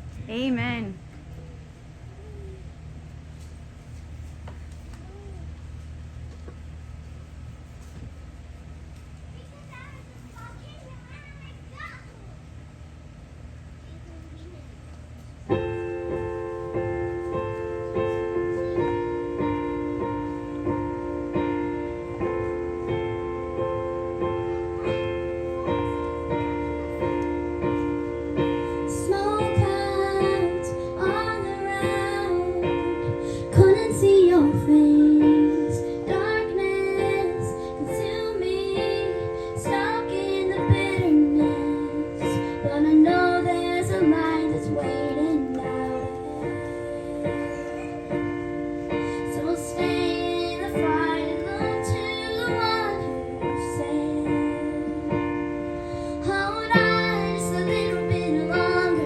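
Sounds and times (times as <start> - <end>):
piano chords: 15.4 - 59.0
girl singing: 28.4 - 59.0.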